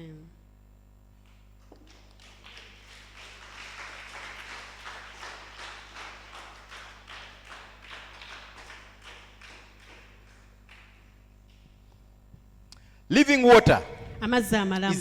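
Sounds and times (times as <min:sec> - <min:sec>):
low electrical hum: 0:00.0 - 0:15.0
faint congregation clapping: 0:01.2 - 0:12.1.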